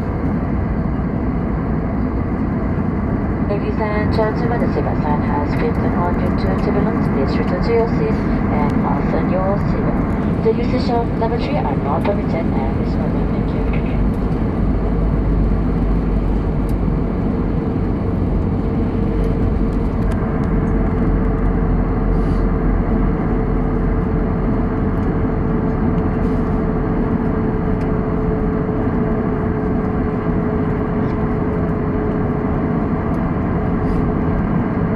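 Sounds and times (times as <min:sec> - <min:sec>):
steady hum: 0:00.0 - 0:21.0
jet engines roaring: 0:00.0 - 0:34.9.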